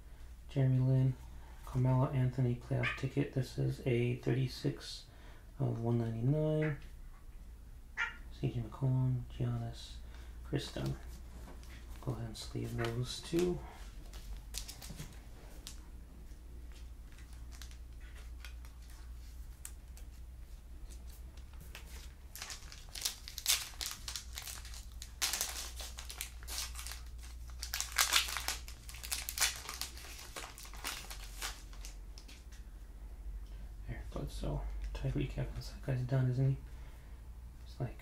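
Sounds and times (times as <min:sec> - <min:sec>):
plastic card sleeves crinkling: 0:10.6 - 0:20.2, 0:20.8 - 0:32.6.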